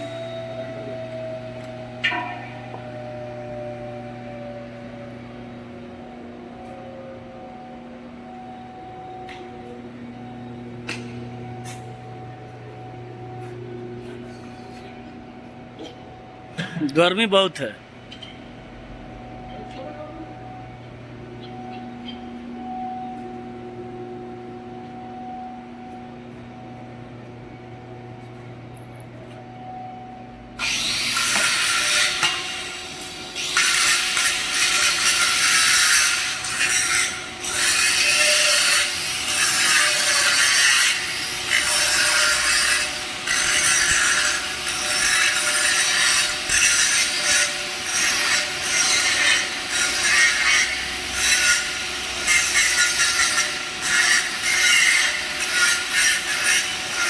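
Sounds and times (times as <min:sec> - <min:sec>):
electrical hum: 0:00.0 - 0:55.9
welding arc crackling: 0:30.6 - 0:57.0.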